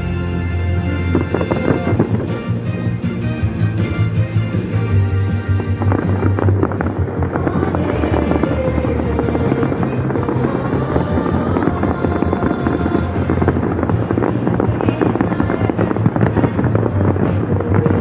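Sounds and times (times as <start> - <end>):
fireworks bursting and crackling: 0.0 - 18.0
loud music over speakers: 0.0 - 18.0
low rumble: 0.0 - 18.0.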